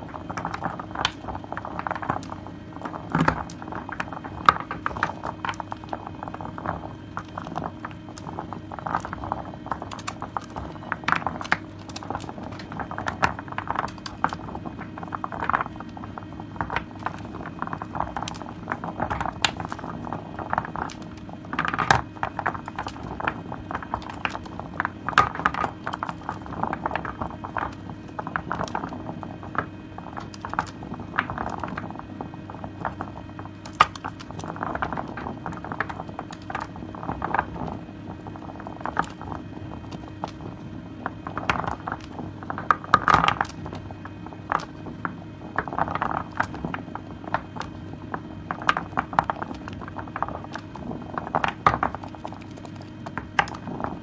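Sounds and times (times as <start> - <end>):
lather clicks and crackles: 0.0 - 54.0.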